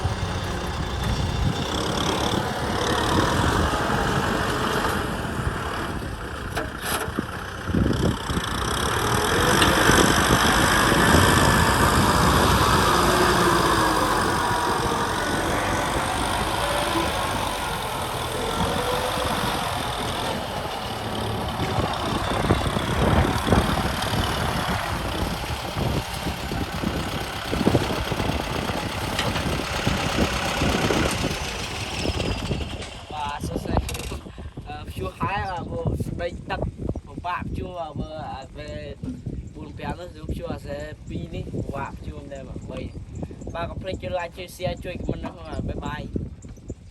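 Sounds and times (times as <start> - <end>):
tractor diesel engine running: 0.0 - 35.6.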